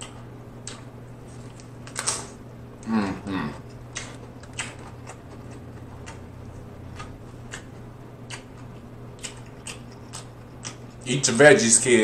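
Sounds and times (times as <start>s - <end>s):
steady low hum: 0.0s - 12.0s
crunchy chewing: 3.1s - 11.1s.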